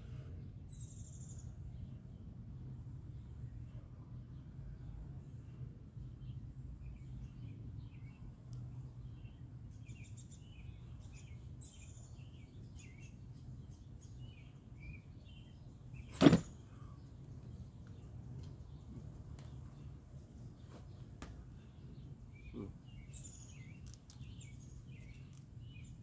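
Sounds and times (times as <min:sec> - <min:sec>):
small birds chirping: 0:00.6 - 0:26.0
loud thump: 0:16.1 - 0:16.5.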